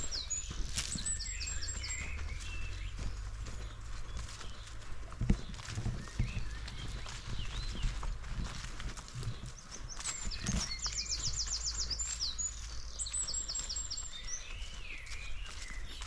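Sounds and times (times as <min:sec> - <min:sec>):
songbird trilling: 0:00.0 - 0:04.7, 0:09.5 - 0:16.0
footsteps on forest floor: 0:00.0 - 0:16.0.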